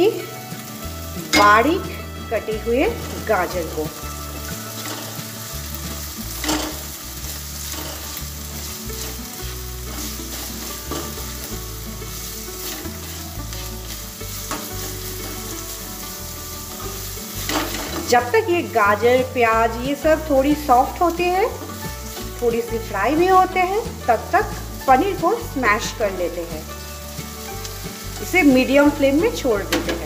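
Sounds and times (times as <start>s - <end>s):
vegetables sizzling in oil: 0.0s - 30.0s
spatula scraping and tapping pan: 3.9s - 16.1s, 16.7s - 18.2s, 25.8s - 30.0s.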